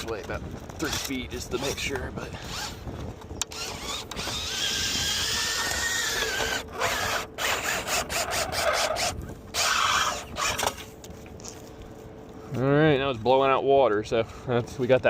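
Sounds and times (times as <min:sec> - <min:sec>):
cordless drill spinning brush: 0:00.8 - 0:02.8, 0:03.5 - 0:10.9.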